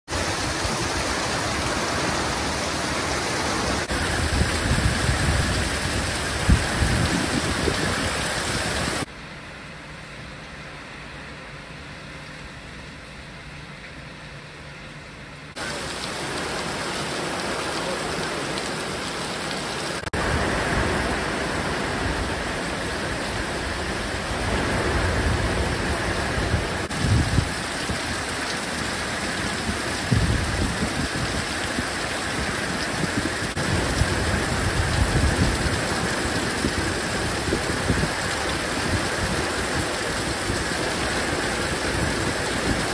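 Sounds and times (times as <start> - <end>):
heavy rain hissing: 0.1 - 9.1, 15.5 - 42.9
low rumbling surges: 20.2 - 42.9.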